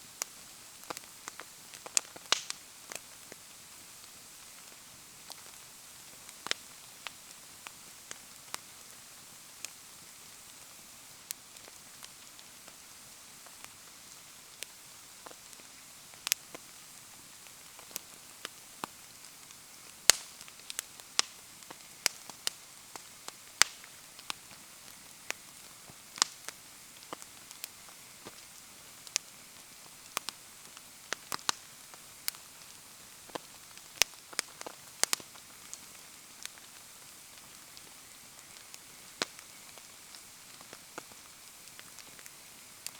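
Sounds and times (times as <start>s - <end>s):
rain hiss: 0.0s - 42.9s
wood fire crackling: 0.0s - 42.9s.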